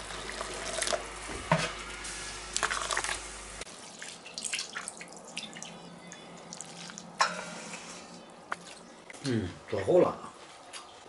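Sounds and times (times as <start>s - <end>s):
water pouring: 0.0s - 1.1s, 2.6s - 5.8s, 6.5s - 7.1s.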